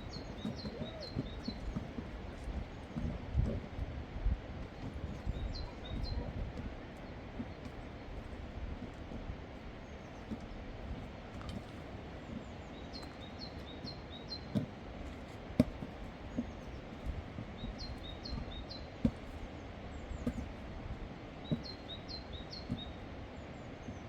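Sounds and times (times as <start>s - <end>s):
songbird chirping: 0.0s - 3.1s, 21.4s - 24.0s.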